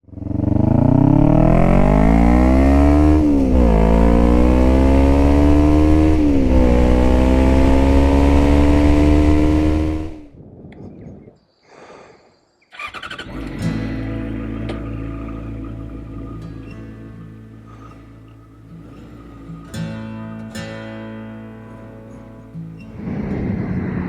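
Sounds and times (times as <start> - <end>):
motorcycle engine accelerating: 0.0 - 10.4, 12.8 - 20.3.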